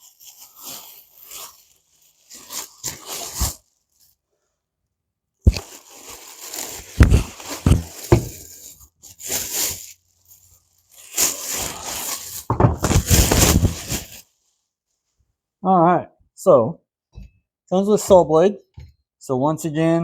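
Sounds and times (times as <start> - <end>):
cardboard scraping and tearing: 0.1 - 3.7, 5.5 - 9.9, 10.9 - 14.2.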